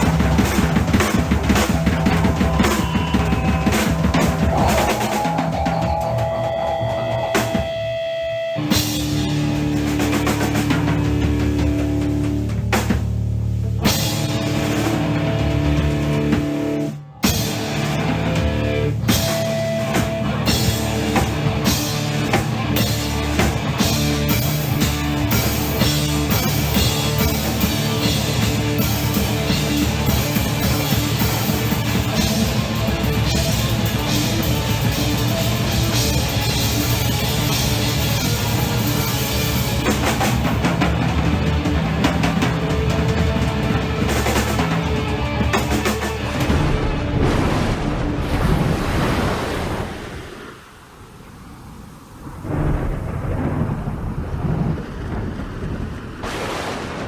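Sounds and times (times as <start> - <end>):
drum kit solo: 0.0 - 48.2
cymbals washing: 13.4 - 47.1.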